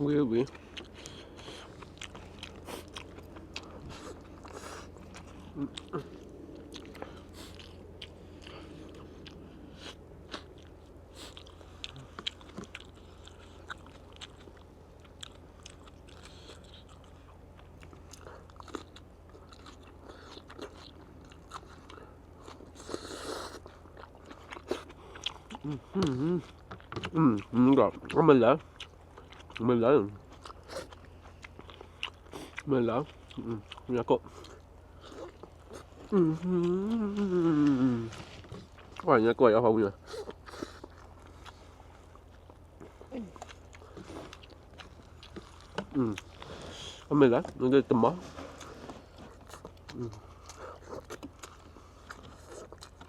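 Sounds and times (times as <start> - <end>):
person chewing crunchy food: 0.0 - 53.0
steady low hum: 0.0 - 53.0.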